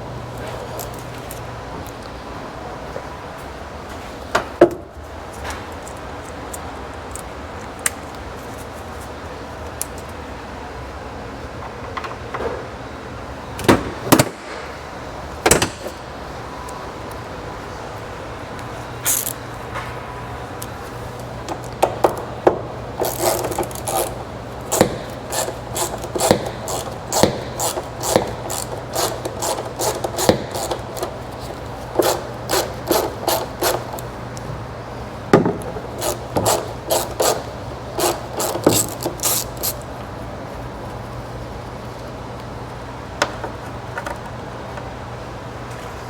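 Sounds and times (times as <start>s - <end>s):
steady low hum: 0.0s - 46.0s
hand tools scraping and knocking: 20.6s - 34.2s, 35.4s - 39.9s.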